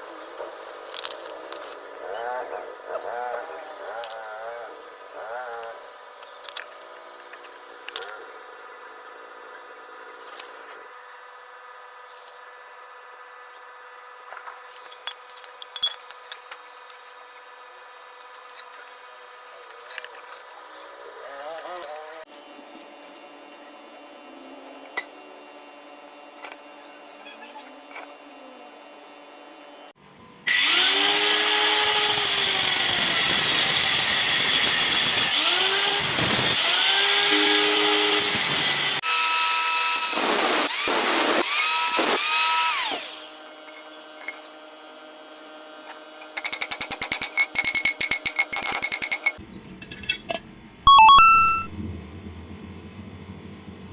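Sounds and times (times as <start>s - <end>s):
handheld power tool running: 30.5s - 43.6s.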